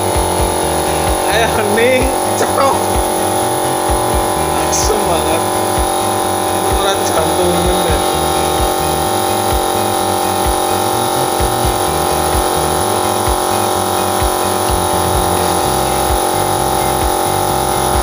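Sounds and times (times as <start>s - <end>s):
background music with bass line: 0.0s - 18.0s
small motor humming: 0.0s - 18.0s.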